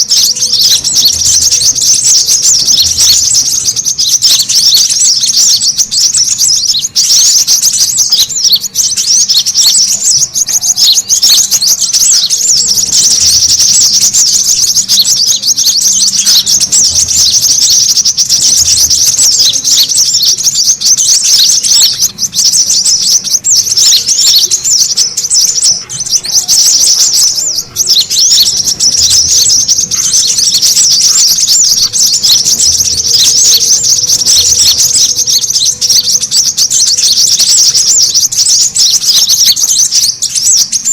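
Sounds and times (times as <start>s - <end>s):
sunbirds twittering: 0.0s - 40.9s.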